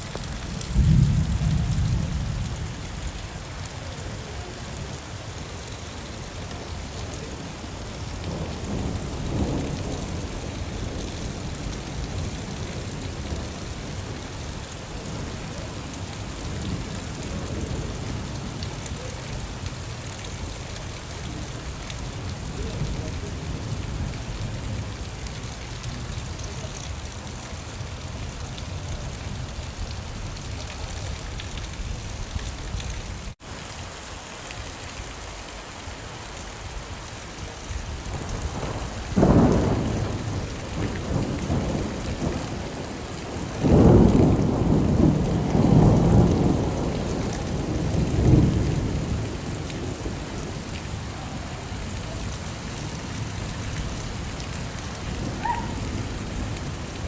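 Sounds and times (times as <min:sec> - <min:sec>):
steady rain falling: 0:00.0 - 0:57.0
rolling thunder: 0:00.3 - 0:03.2, 0:08.0 - 0:14.2, 0:38.0 - 0:57.0.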